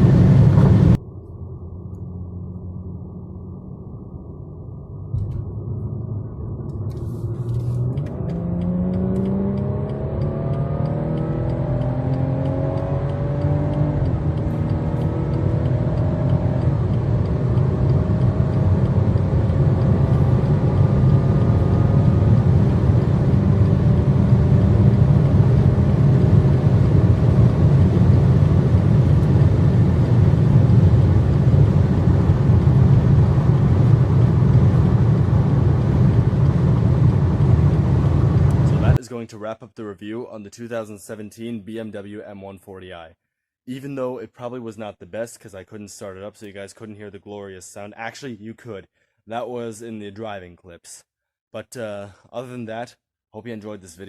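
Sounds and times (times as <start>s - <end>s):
deep rumble: 0.0s - 8.9s, 13.9s - 39.0s
car engine accelerating: 0.0s - 39.0s
wind and road noise: 0.0s - 39.0s.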